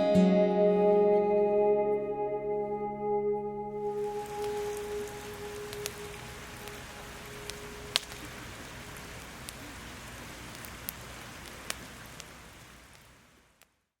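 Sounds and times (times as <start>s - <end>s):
steady rain: 3.8s - 13.9s.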